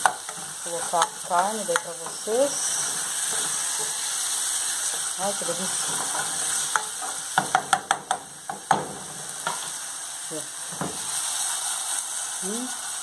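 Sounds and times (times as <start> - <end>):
vegetables sizzling in oil: 0.0 - 13.0
spatula knocking against pan: 6.7 - 9.6.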